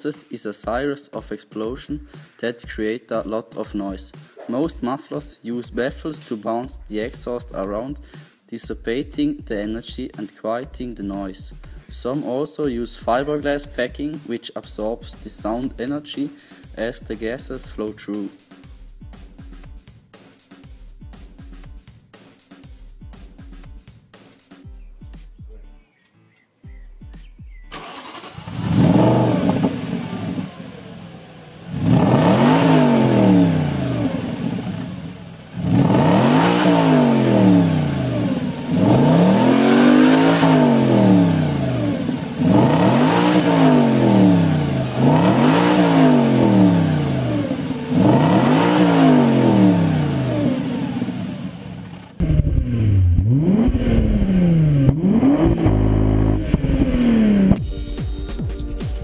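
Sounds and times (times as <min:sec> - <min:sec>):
car engine revving: 0:27.7 - 0:58.8.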